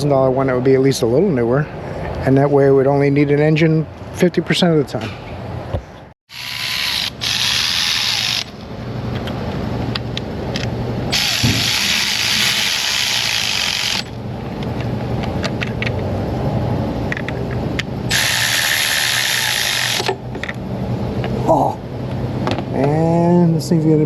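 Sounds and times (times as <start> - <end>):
power tool running in bursts: 6.3 - 8.6, 11.1 - 14.2, 18.1 - 20.1.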